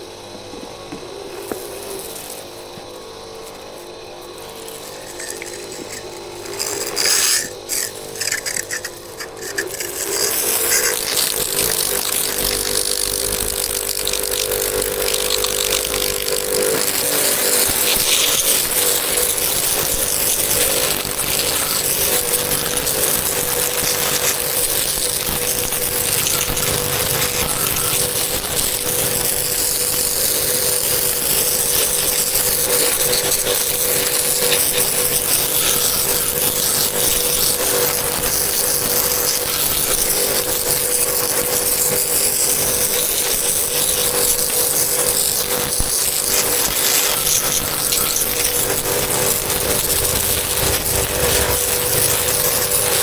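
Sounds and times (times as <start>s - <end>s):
power tool whining: 0.0s - 53.0s
loud hiss: 45.7s - 53.0s.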